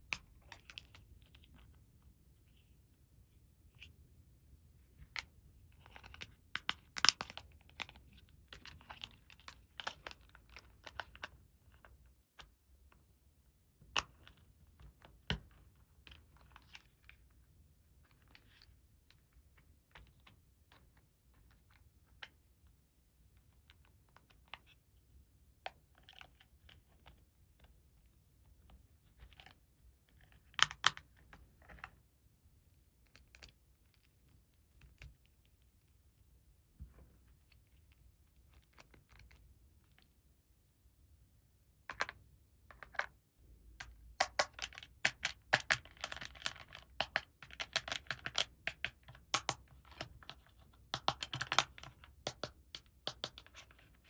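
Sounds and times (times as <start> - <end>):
plastic toy pieces clicking: 44.2 - 50.2, 51.0 - 53.6.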